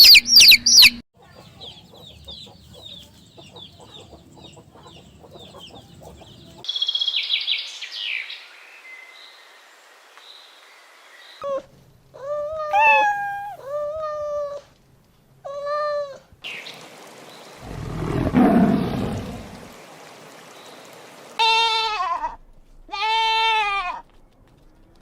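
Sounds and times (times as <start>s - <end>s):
cat meowing: 12.6s - 13.7s.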